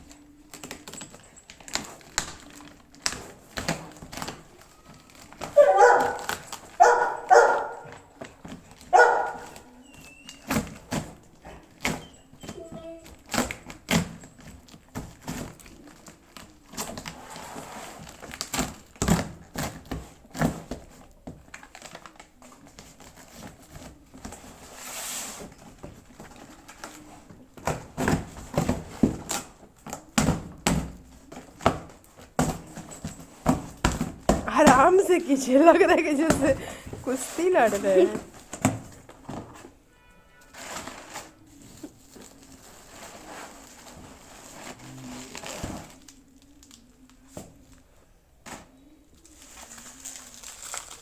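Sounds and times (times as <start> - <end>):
objects being handled roughly: 0.6 - 16.0, 22.8 - 39.6.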